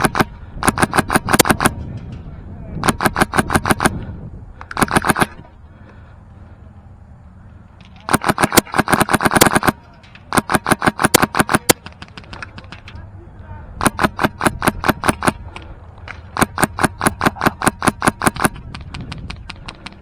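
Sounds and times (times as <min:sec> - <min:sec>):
airsoft rifle firing bursts: 0:00.0 - 0:01.8, 0:02.8 - 0:04.0, 0:04.7 - 0:05.4, 0:08.1 - 0:12.8, 0:13.8 - 0:15.5, 0:16.2 - 0:20.0.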